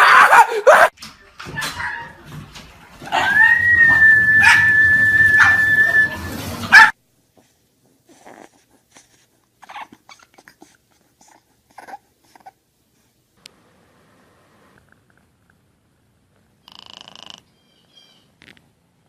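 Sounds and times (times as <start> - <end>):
puppy whimpering: 8.1 - 12.6.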